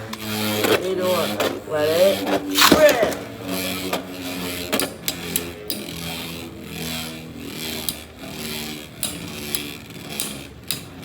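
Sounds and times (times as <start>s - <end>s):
spinning tops clacking together: 0.0s - 6.0s
spinning tops whirring: 0.0s - 11.0s.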